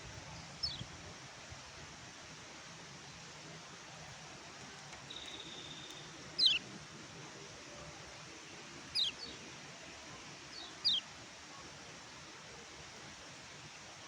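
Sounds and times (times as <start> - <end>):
steady hiss: 0.0 - 14.0
bird calling with chirps: 5.1 - 6.6, 8.9 - 9.4, 10.6 - 11.0.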